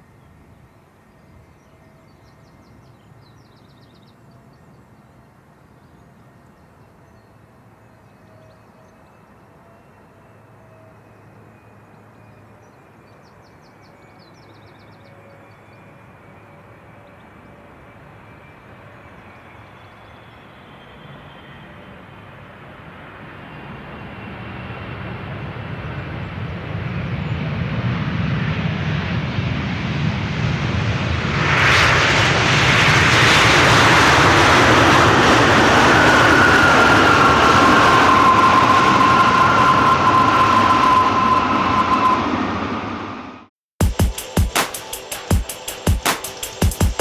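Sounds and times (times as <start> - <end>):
jet engine whine: 0.0 - 43.5, 44.2 - 47.0
jet engines roaring: 20.4 - 43.5.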